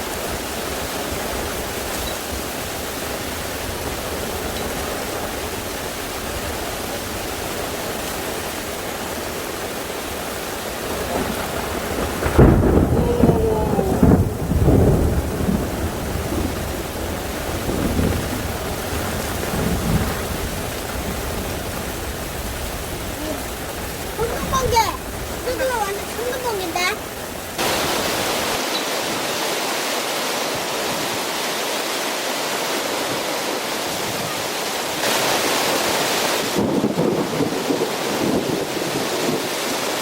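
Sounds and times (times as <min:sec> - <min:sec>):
thunder rumbling: 0:00.0 - 0:28.6
heavy rain falling: 0:00.0 - 0:40.0.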